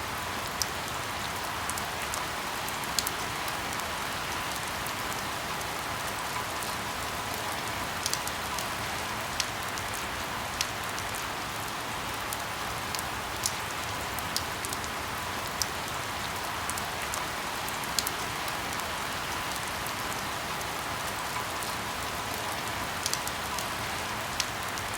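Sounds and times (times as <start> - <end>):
steady rainfall: 0.0 - 24.9
raindrops ticking: 0.4 - 24.9.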